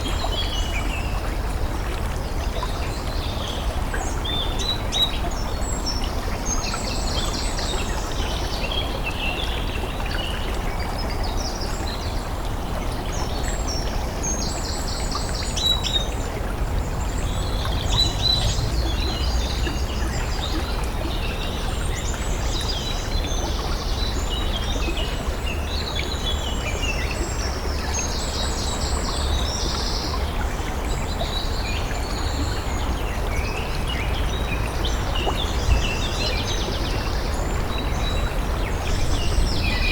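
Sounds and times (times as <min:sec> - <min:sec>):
low outdoor rumble: 0:16.6 - 0:20.9.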